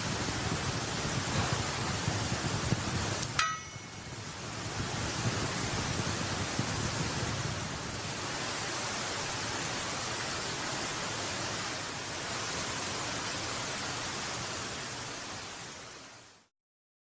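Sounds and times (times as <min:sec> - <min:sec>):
steady rushing noise: 0:00.0 - 0:16.5.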